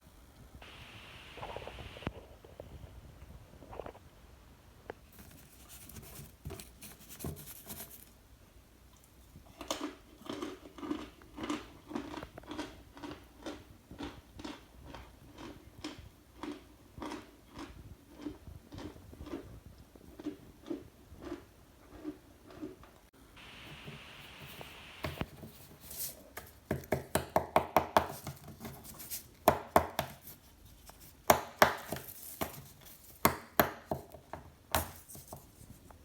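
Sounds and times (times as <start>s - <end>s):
chewing crunches: 9.4s - 22.8s.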